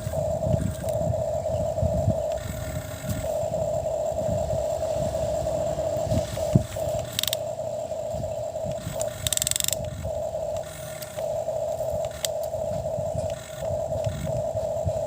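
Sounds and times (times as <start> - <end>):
toy motor whining: 0.0 - 15.0
sharp click: 8.7 - 11.3.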